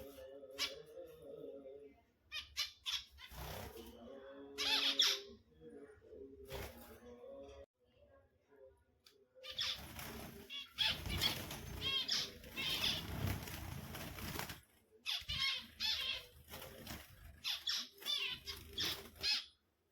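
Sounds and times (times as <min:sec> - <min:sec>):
wings fluttering: 0:09.5 - 0:19.5
finches chirping: 0:10.5 - 0:13.3, 0:15.1 - 0:16.4, 0:17.2 - 0:19.5.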